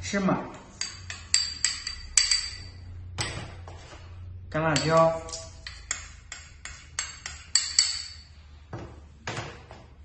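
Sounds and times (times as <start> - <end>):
utensil clinking on dish: 0.8 - 2.8, 4.7 - 8.3.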